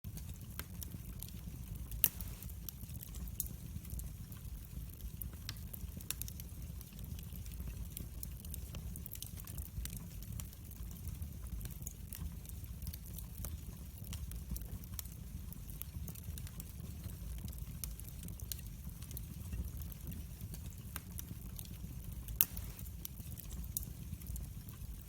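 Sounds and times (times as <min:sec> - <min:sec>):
wood fire crackling: 0:00.1 - 0:25.0
loud pop from fire: 0:02.0 - 0:02.6, 0:22.4 - 0:23.0.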